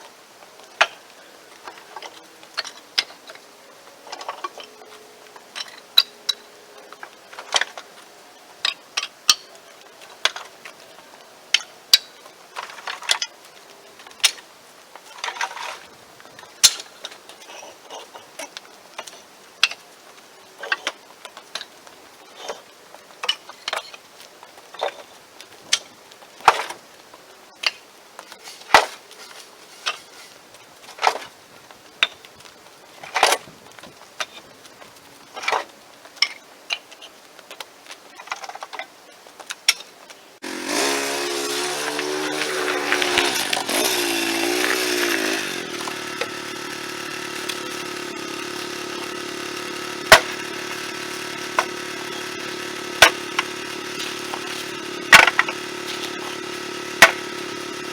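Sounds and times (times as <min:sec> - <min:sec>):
firewood knocking and clacking: 0:40.5 - 0:57.8.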